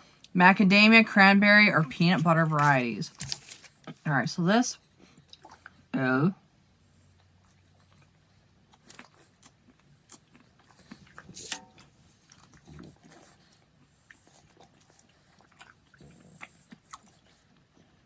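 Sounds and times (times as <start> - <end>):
wrapper clicks and rustles: 2.4 - 3.9.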